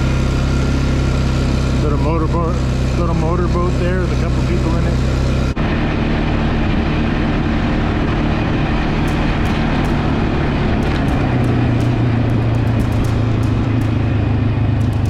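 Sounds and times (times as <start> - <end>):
vehicle engine running: 0.0 - 15.0
clicks and knocks from ride: 8.9 - 14.2, 14.8 - 15.0.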